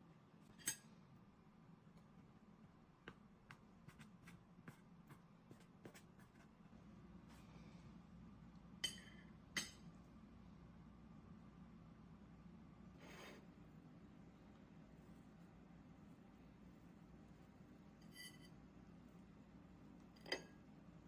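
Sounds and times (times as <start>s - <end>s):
low steady hum: 0.0s - 21.0s
cutlery tapping on a dish: 8.8s - 9.8s.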